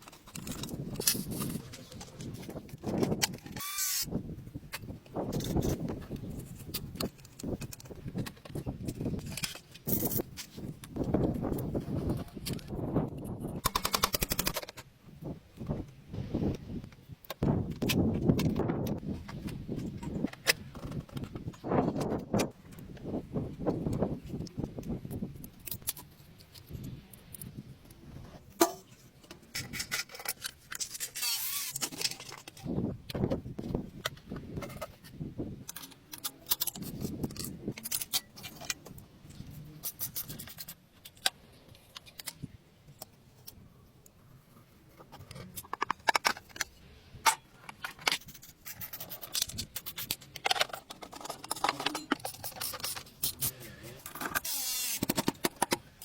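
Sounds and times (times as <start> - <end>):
metal tools clinking and scraping: 47.3 - 55.7.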